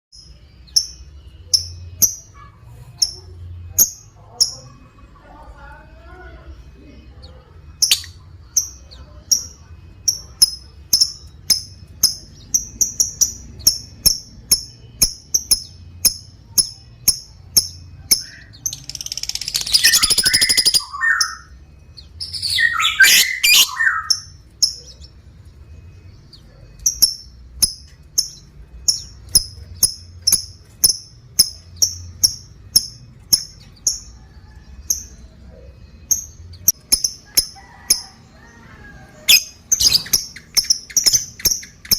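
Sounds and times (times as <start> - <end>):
lovebird chirping: 0.1 - 41.9
lovebird rattling chatter: 17.7 - 20.8.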